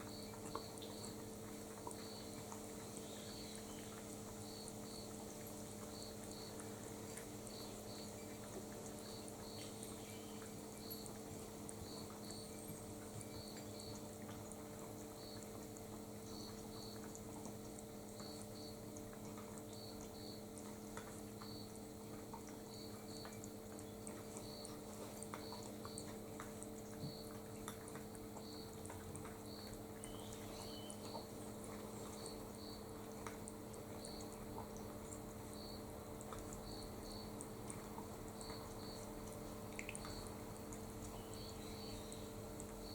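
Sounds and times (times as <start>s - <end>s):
low electrical hum: 0.0s - 42.9s
small bird chirping: 9.0s - 11.1s, 29.5s - 31.3s.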